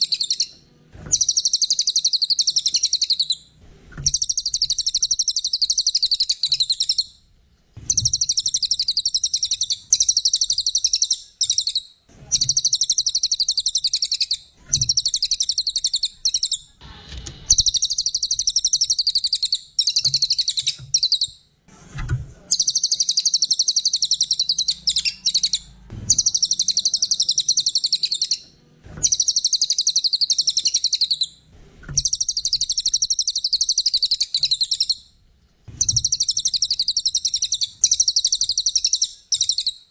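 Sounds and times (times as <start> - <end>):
songbird chattering trills: 22.5 - 28.4.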